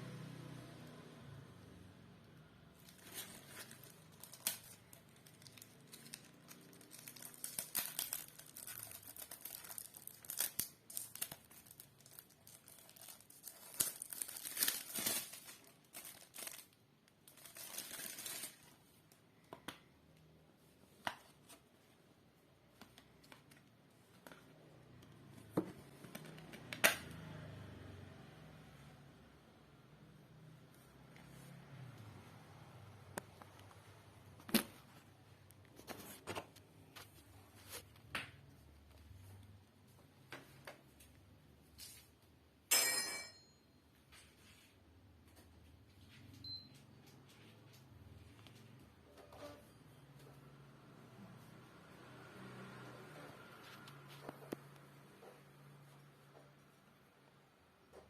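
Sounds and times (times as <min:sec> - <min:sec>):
packaging tearing and crinkling: 0:02.8 - 0:18.8.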